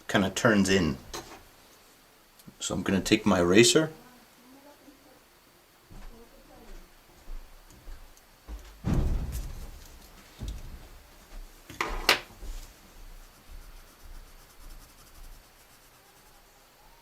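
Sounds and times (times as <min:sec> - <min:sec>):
eraser rubbing on paper: 0:12.4 - 0:16.9
sharp scraping stroke: 0:12.7 - 0:16.6.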